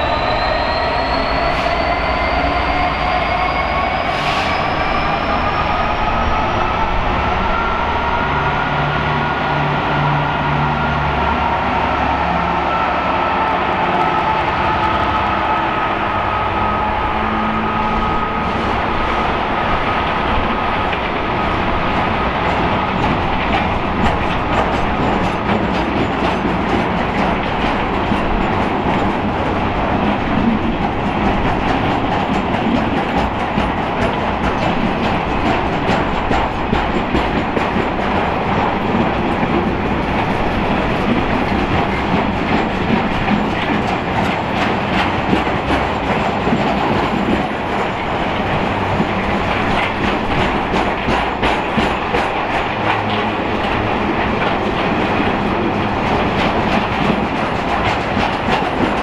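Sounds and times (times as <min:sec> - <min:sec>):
train wheels clattering over rail joints: 0:21.8 - 0:59.0.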